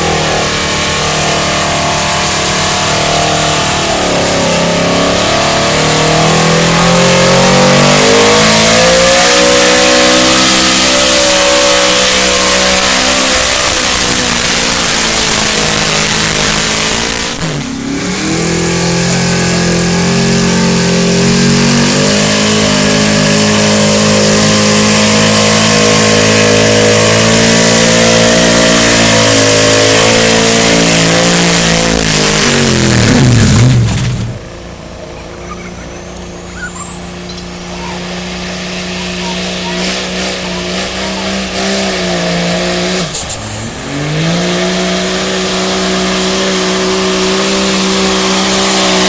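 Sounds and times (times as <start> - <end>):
truck engine at full throttle: 0.0 - 49.0.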